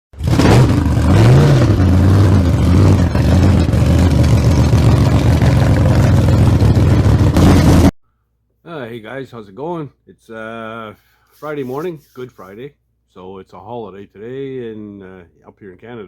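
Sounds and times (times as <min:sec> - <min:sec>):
vehicle engine revving: 0:00.2 - 0:07.9.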